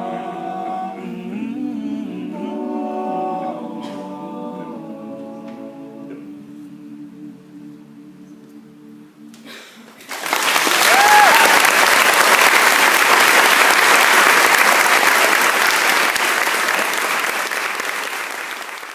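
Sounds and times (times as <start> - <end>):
audience applauding: 10.0 - 18.9.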